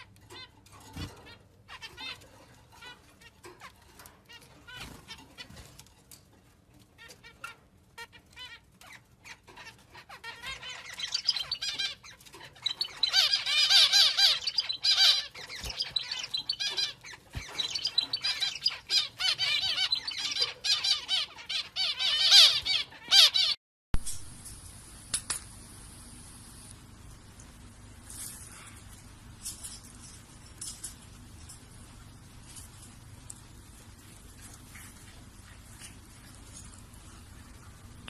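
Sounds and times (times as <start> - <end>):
parrot squawking: 8.3 - 23.6.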